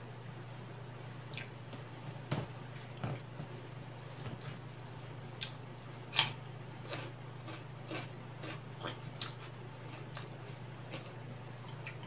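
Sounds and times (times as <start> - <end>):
wet chewing and mouth sounds: 1.3 - 1.6, 5.4 - 12.0.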